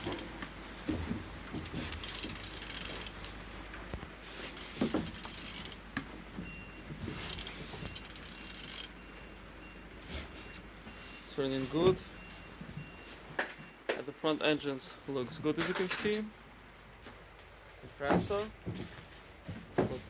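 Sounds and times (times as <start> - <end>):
metallic clicks and rattles: 0.0 - 0.4, 1.5 - 3.3, 4.6 - 5.8, 7.2 - 9.0
engine turned over by hand: 0.0 - 3.3, 4.4 - 5.8.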